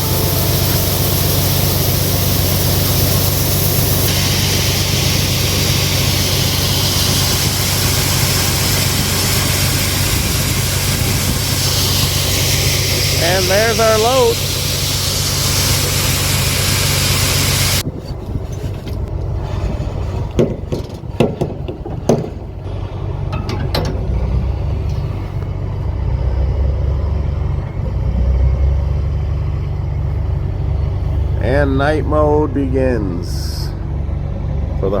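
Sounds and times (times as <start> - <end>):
diesel engine rumbling: 0.0 - 35.0
sharp clicks and knocks: 20.2 - 22.6, 23.3 - 24.2.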